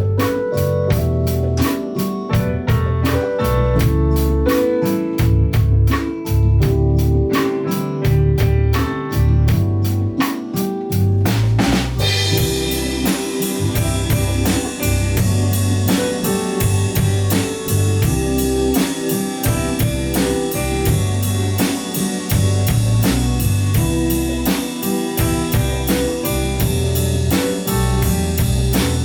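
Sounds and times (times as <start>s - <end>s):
drum kit beat: 0.0s - 29.0s
pop-jazz band playing live: 0.0s - 29.0s.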